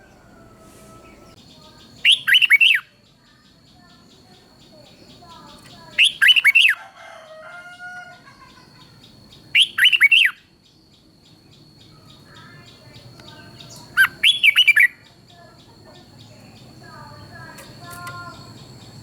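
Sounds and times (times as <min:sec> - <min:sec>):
bird singing whistled phrases: 0:01.1 - 0:03.0, 0:05.4 - 0:06.8, 0:09.5 - 0:10.4, 0:13.4 - 0:15.1.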